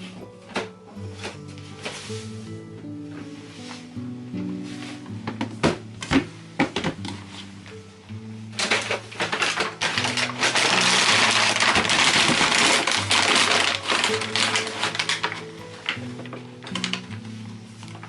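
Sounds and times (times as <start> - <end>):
soft background music: 0.0 - 18.0
objects clicking and crackling: 8.6 - 17.2.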